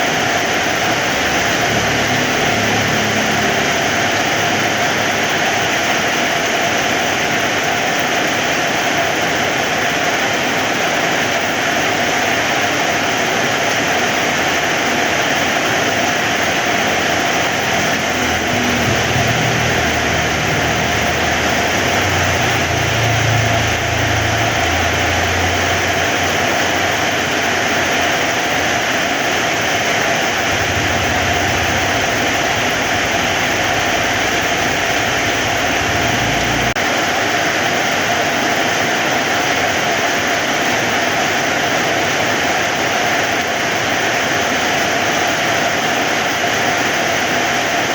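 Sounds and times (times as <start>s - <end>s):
heavy rain falling: 0.0s - 47.9s
low rumble: 16.8s - 27.6s, 30.3s - 36.8s.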